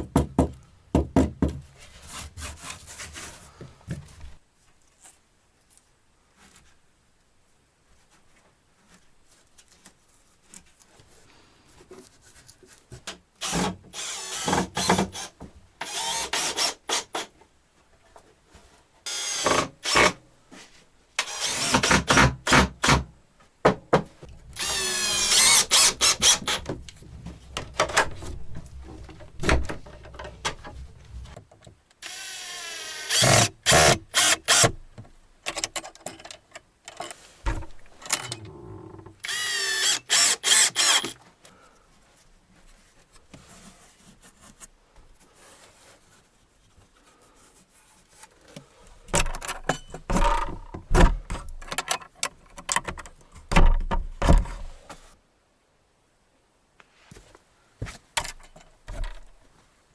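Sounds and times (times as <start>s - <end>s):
power drill whining: 19.1s - 20.1s, 24.5s - 26.7s, 32.0s - 34.7s, 39.2s - 41.2s.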